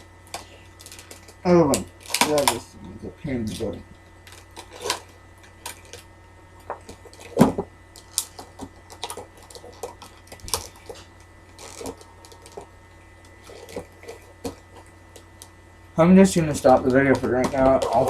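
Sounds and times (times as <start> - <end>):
plastic packaging crackling: 0.0 - 15.6, 16.2 - 18.0.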